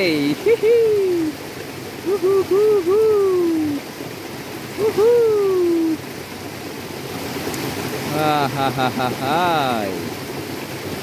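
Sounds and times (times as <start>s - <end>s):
stream water rushing: 0.0s - 11.0s
bird hooting: 2.0s - 3.8s.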